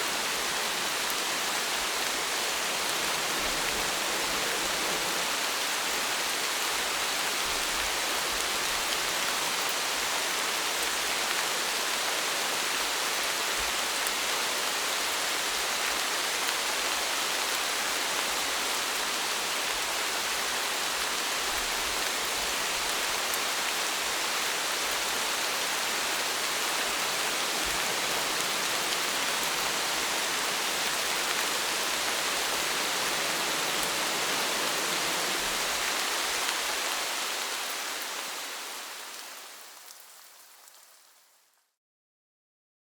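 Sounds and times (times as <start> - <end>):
steady rainfall: 0.0 - 41.6.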